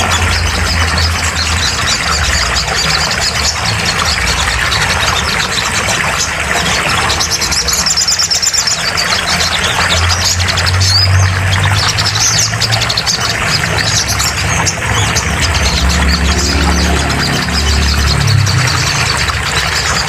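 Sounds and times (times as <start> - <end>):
songbird chirps and trills: 0.0 - 20.0.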